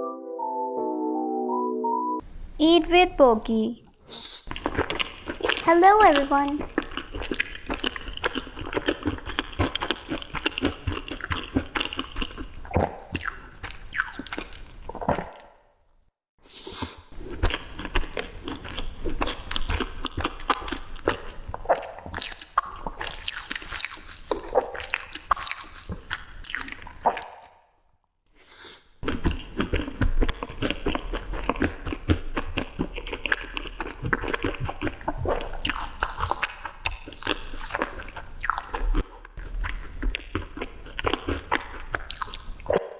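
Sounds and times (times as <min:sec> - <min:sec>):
person chewing sweets: 0:03.8 - 0:15.6, 0:16.7 - 0:27.6, 0:29.0 - 0:42.9
wet smacks and clicks: 0:29.0 - 0:37.9.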